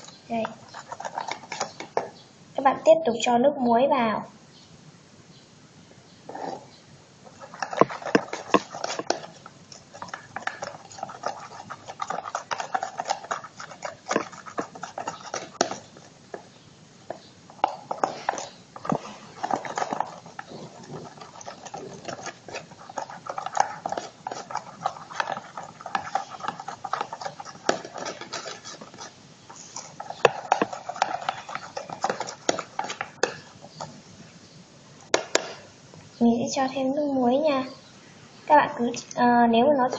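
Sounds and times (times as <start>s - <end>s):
wet scraping of slime: 0.0s - 2.2s, 7.3s - 16.5s, 17.1s - 34.0s.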